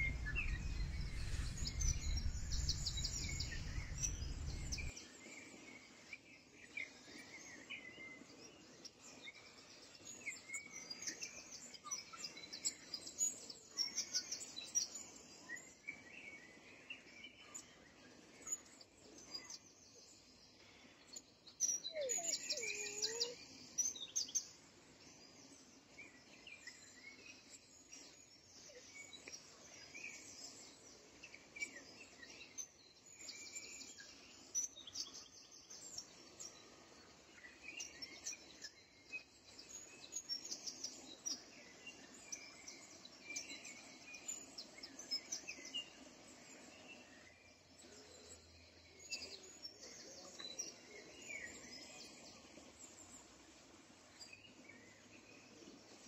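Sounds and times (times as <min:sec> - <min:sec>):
birds chirping and trilling: 0:00.0 - 0:04.9.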